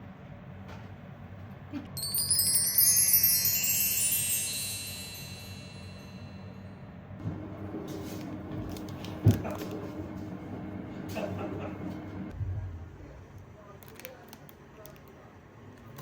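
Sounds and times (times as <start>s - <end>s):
small metal chimes tinkling: 2.0s - 6.6s.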